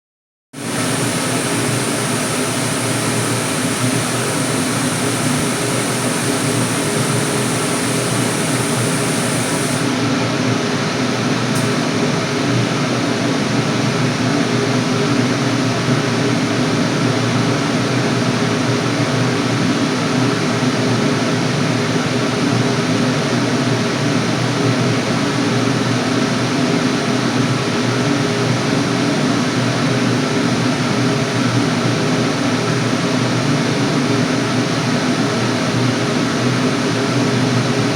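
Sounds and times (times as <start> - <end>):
thin high hiss: 0.6 - 9.9
boiler burner rumbling: 0.6 - 13.4.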